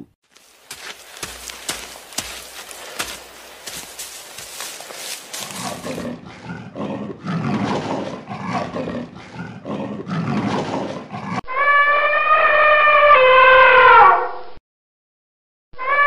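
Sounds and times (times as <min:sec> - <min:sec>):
cheetah growling: 0:02.3 - 0:11.4.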